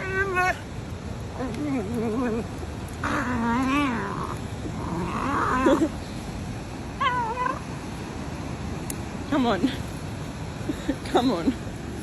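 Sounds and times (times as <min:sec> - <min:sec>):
cat yowling: 0:07.0 - 0:07.6.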